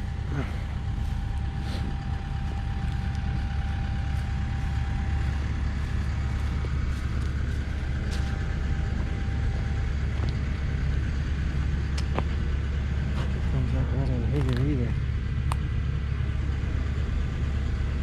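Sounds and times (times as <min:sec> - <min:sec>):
excavator diesel engine running: 0:00.0 - 0:18.0
faint steady whine: 0:00.0 - 0:18.0.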